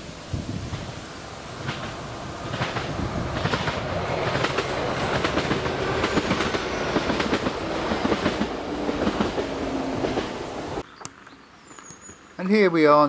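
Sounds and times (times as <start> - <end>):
train wheel and rail noise: 0.0 - 10.8.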